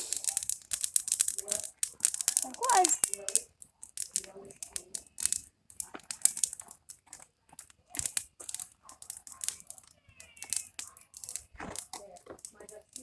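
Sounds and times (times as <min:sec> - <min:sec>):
campfire twigs crackling: 0:00.0 - 0:13.0
sharp snaps and pops: 0:00.0 - 0:13.0.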